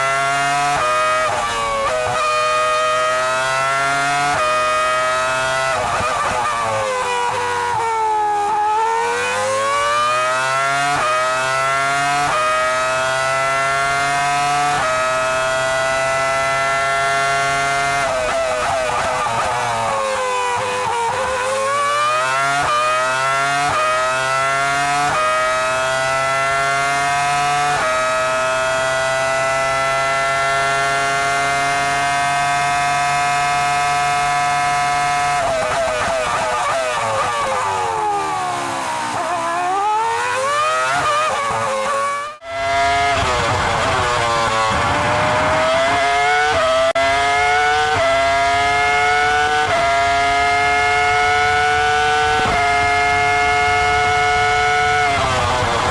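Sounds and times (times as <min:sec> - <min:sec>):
engine downshifting with throttle blips: 0:00.0 - 0:55.9
racing engine accelerating: 0:00.0 - 0:55.9
racing car engine screaming: 0:35.1 - 0:54.0.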